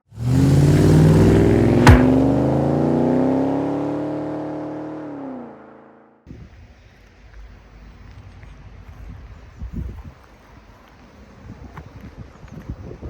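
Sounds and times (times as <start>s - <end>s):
car engine revving: 0.1s - 5.0s
sharp crack: 1.5s - 2.6s.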